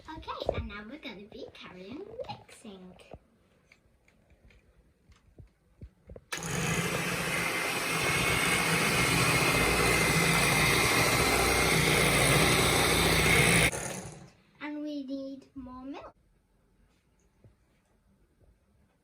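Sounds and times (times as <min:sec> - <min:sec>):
electric hand mixer running: 0:06.4 - 0:14.3.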